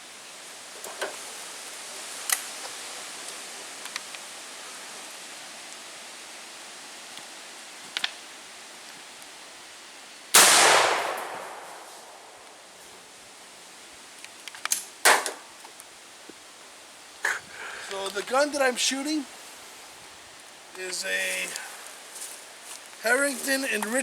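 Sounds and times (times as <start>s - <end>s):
shotgun blast: 10.4s - 12.5s.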